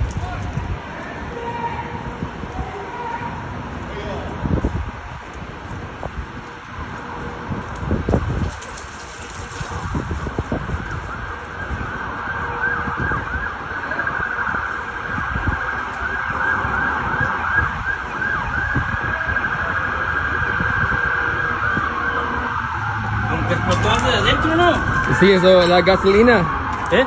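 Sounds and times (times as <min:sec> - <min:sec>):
low street rumble: 0:00.0 - 0:27.0
emergency sirens yelping: 0:08.0 - 0:27.0.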